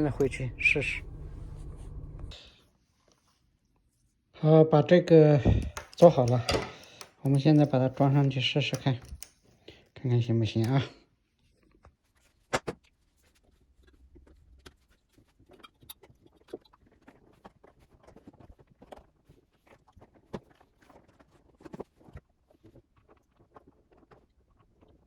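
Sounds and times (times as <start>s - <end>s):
small plastic clicks and taps: 5.5s - 9.4s.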